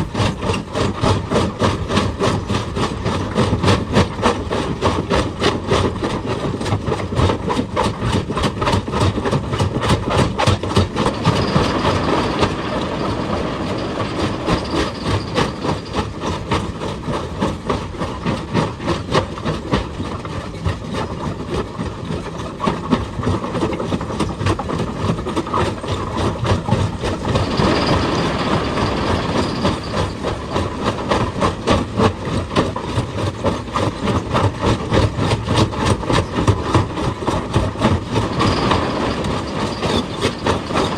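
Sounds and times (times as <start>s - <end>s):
hydraulic breaker hammering rock: 0.0s - 40.9s
excavator engine running: 5.2s - 20.0s, 23.2s - 40.9s.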